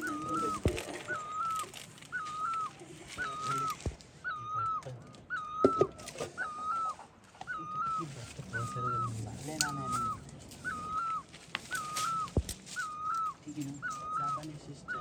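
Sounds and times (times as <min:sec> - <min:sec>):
animal call: 0:00.0 - 0:15.0.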